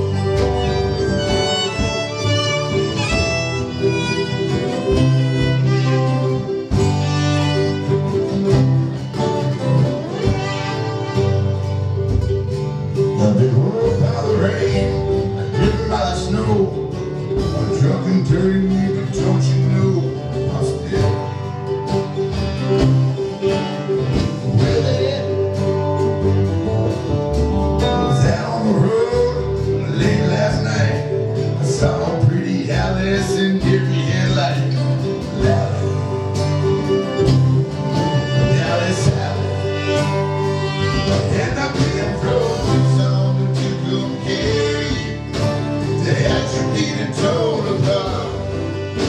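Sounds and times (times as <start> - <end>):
fiddle melody: 0.0 - 49.0
strummed acoustic guitar: 0.0 - 49.0
person singing: 12.9 - 21.8, 23.3 - 26.4, 27.8 - 49.0.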